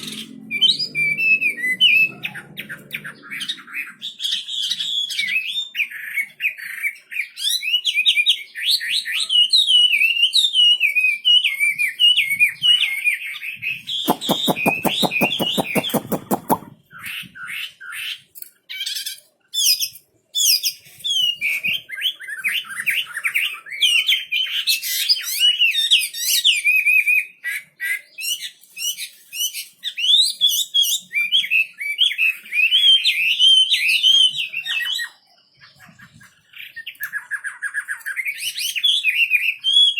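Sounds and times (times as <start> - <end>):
songbird warbling: 14.1 - 16.8.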